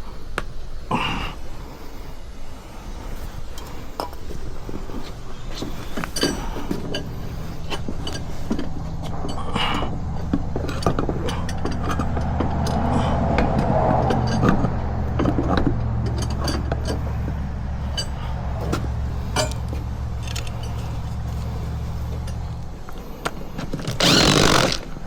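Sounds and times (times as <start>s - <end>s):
steady low hum: 0.0s - 25.0s
metal tools clinking: 5.6s - 23.1s, 23.7s - 25.0s.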